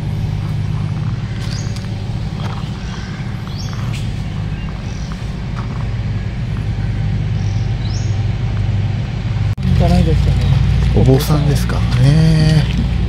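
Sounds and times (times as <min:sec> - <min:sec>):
steady low rumble: 0:00.0 - 0:13.0
bird chirping: 0:00.4 - 0:08.3.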